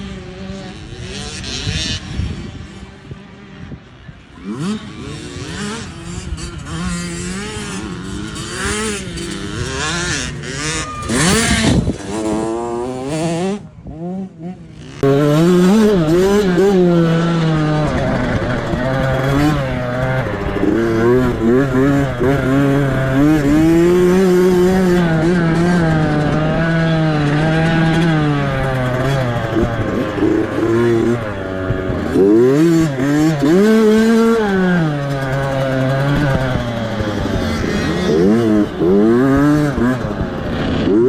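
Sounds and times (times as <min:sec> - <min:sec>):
motocross bike engine revving: 0:00.0 - 0:41.0.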